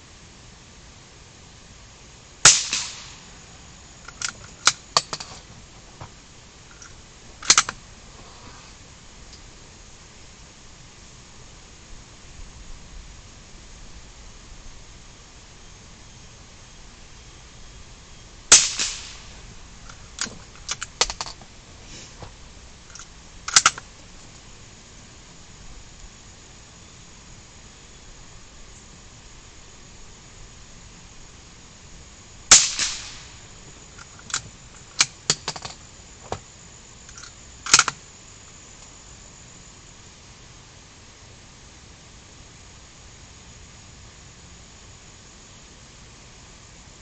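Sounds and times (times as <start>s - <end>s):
gunshot with echo: 2.5s - 3.2s, 18.5s - 19.3s, 32.5s - 33.4s
sharp mechanical clicks: 4.0s - 5.3s, 6.7s - 7.8s, 19.9s - 21.3s, 22.9s - 23.8s, 34.0s - 35.8s, 37.1s - 38.0s
sharp mechanical clicks and clacks: 37.1s - 38.0s.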